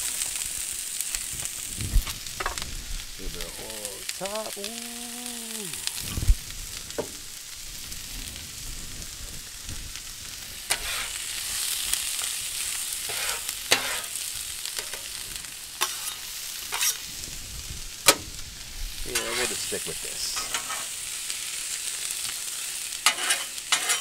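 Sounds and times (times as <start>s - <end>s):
food sizzling on a griddle: 0.0s - 24.0s
metal scraper scraping griddle: 10.7s - 11.2s, 13.0s - 14.2s, 15.8s - 17.0s, 19.1s - 19.6s, 20.4s - 20.9s, 23.0s - 24.0s.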